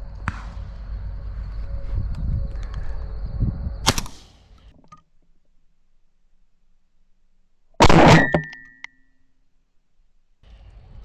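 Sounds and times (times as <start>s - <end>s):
shotgun shots: 7.8s - 8.6s.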